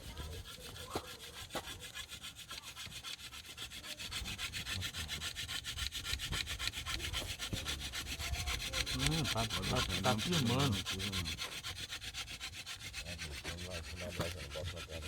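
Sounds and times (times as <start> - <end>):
wood rasping on wood: 0.0 - 15.0.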